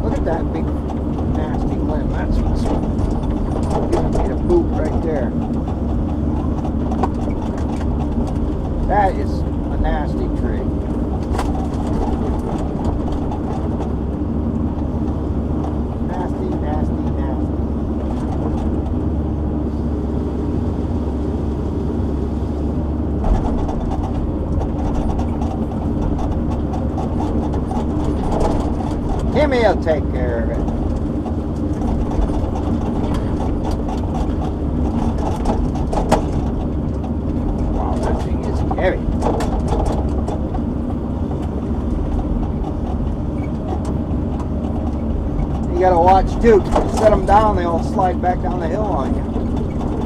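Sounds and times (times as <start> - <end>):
knocks and clanks: 0.0 - 19.1, 23.2 - 50.0
clatter: 0.0 - 19.9, 23.2 - 50.0
diesel engine running: 0.0 - 50.0.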